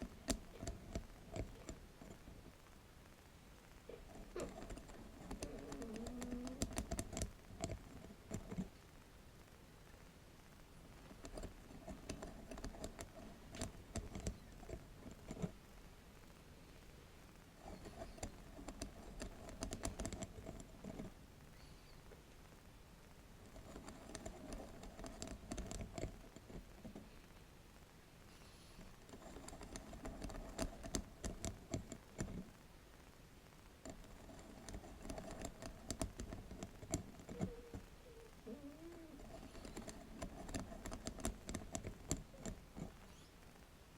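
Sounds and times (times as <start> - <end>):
tapping and scratching on bamboo mat: 0.0 - 2.6, 3.9 - 8.8, 11.0 - 15.6, 17.6 - 21.2, 23.4 - 27.1, 28.9 - 32.6, 33.8 - 37.9, 39.1 - 43.1.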